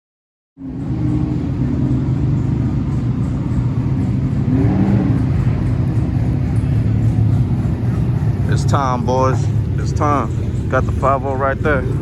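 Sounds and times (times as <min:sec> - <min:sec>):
car engine running: 0:00.6 - 0:12.0.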